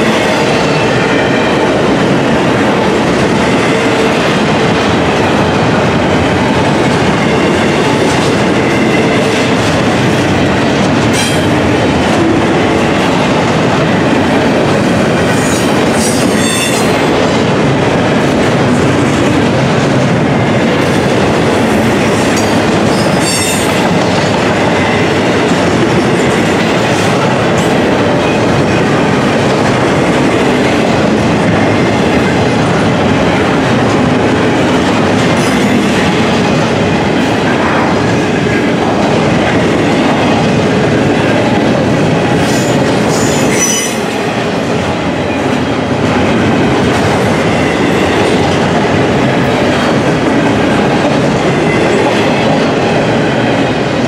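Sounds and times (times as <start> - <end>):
train wheels rolling on rails: 0.0 - 54.0.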